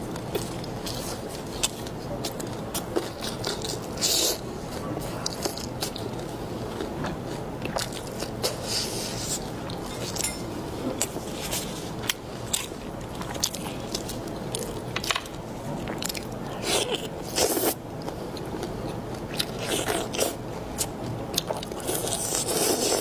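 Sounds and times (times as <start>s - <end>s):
person chewing and crunching: 5.1s - 10.4s, 11.0s - 23.0s.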